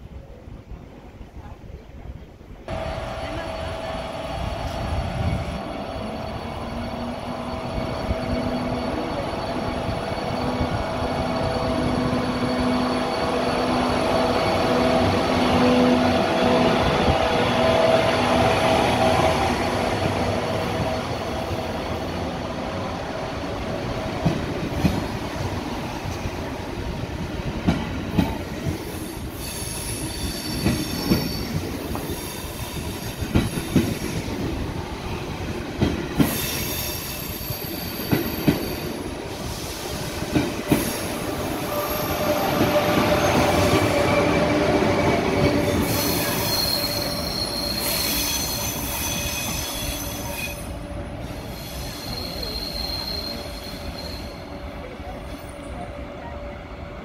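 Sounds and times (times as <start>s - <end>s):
train running gear whine: 2.7s - 57.0s
train brake squeals: 4.6s - 14.4s, 28.8s - 34.3s, 36.2s - 44.4s, 45.0s - 54.6s.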